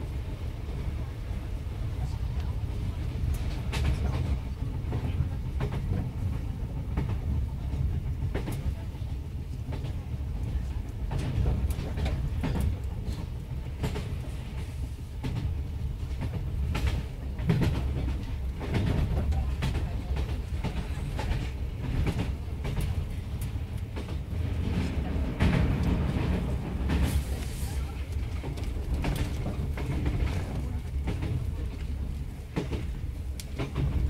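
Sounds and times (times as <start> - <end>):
train running gear rumble: 0.0 - 34.0
wheels clicking over rail joints: 27.8 - 34.0.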